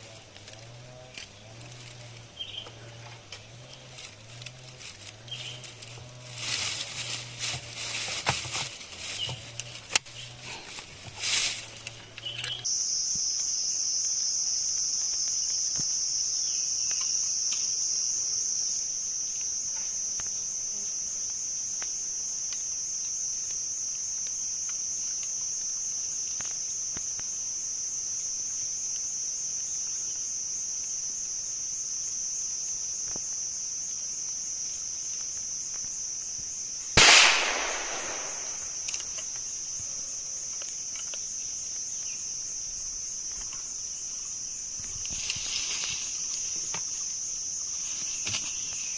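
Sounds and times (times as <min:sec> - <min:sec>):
rustling: 0:00.0 - 0:12.7, 0:44.6 - 0:48.9
high-pitched insect drone: 0:11.5 - 0:48.9.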